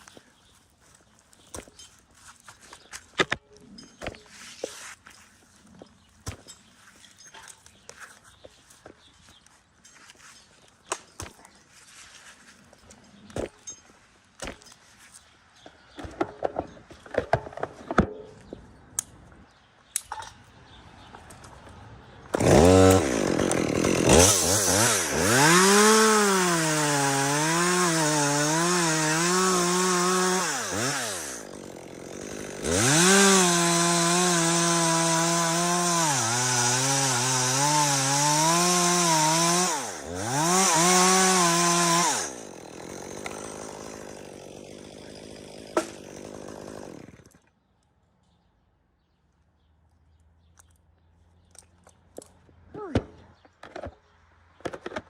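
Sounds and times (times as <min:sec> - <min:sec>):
chainsaw revving: 0:22.3 - 0:47.4.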